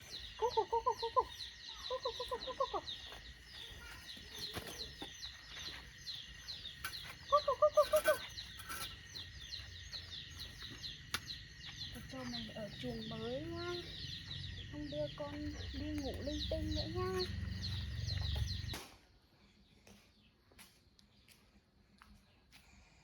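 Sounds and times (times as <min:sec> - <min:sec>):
chicks peeping: 0:00.0 - 0:18.8.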